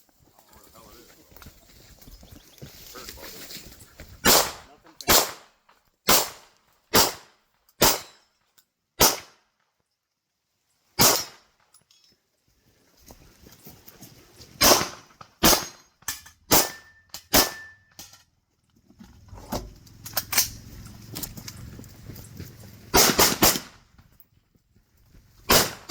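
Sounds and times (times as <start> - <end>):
gunshots: 4.2 - 5.5, 6.1 - 8.2, 9.0 - 9.4, 11.0 - 11.4, 14.6 - 15.8, 16.5 - 17.7, 22.9 - 23.8, 25.5 - 25.9.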